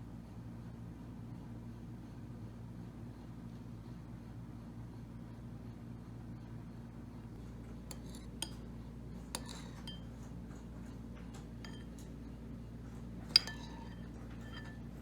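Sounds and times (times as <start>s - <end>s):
cutlery and dishes clinking: 7.9s - 8.6s, 9.4s - 12.2s, 13.2s - 15.0s.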